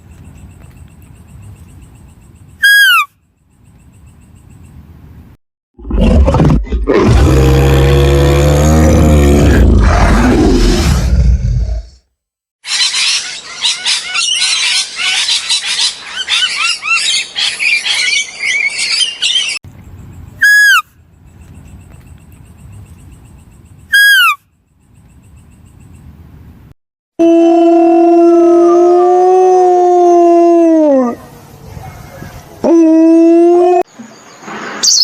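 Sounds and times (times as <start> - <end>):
birds chirping and twittering: 0.0 - 5.0, 12.7 - 26.4, 33.9 - 35.0
shrill falling calls: 2.6 - 3.1, 20.4 - 20.9, 23.9 - 24.4
deep animal roar: 5.8 - 12.0.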